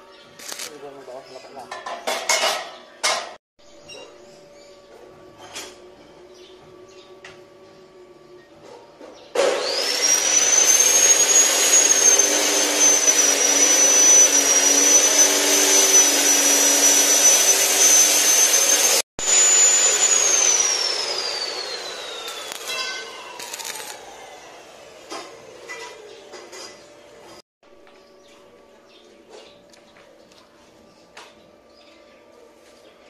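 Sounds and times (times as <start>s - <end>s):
electric motor whining: 9.5s - 25.6s.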